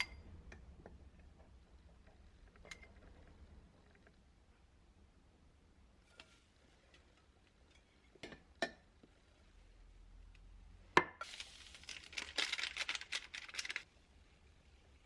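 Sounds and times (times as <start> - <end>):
packaging crinkling: 11.3 - 13.9.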